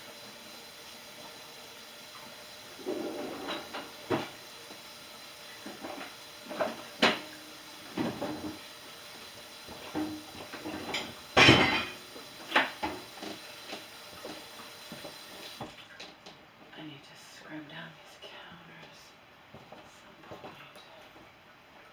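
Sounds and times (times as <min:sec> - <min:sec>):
dishes clinking together: 0:09.9 - 0:13.0.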